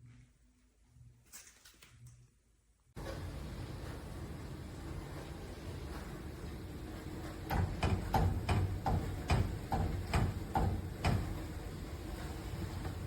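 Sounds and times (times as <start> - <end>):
microwave oven popping: 7.4 - 11.7.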